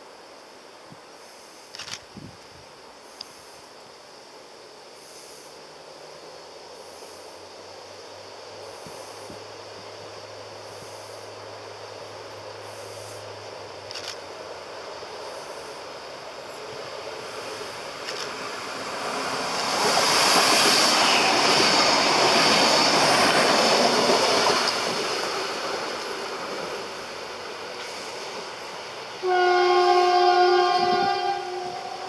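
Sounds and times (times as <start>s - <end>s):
train passing on rails: 2.7s - 32.0s
train horn blast: 29.2s - 32.0s.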